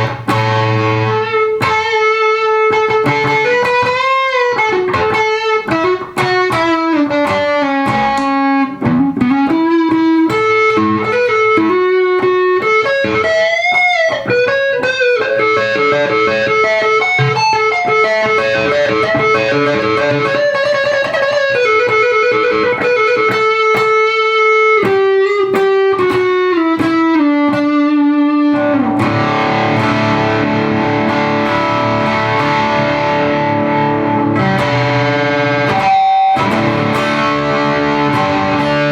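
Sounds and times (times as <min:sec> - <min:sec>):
overdriven electric guitar: 0:00.0 - 0:38.9.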